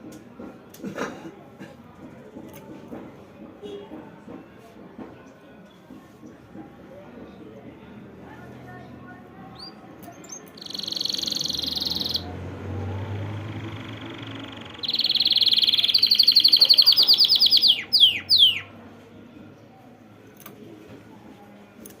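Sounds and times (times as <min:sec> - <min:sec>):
finch trilling: 0:10.3 - 0:12.3, 0:13.8 - 0:18.7.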